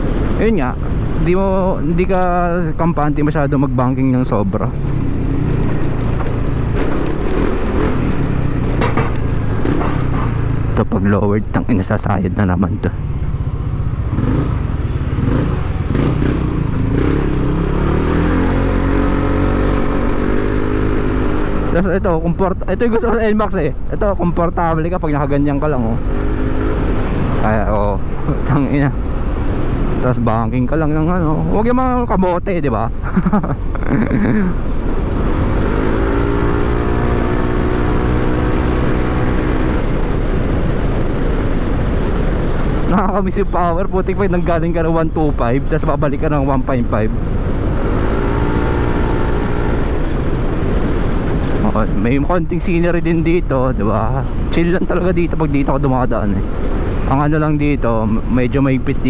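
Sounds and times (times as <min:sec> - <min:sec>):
wind rumble on microphone: 0:00.0 - 0:59.0
scooter engine revving: 0:04.7 - 0:10.8, 0:13.4 - 0:21.7, 0:47.2 - 0:51.8.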